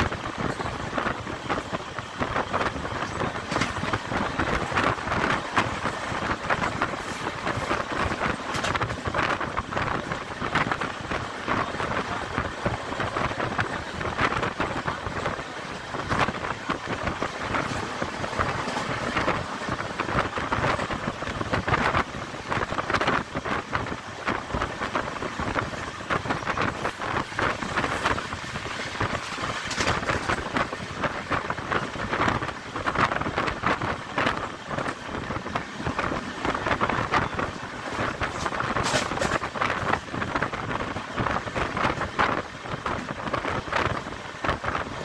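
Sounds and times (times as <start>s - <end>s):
train carriage rattling and rumbling: 0.0s - 45.0s
wind on microphone: 0.0s - 45.0s.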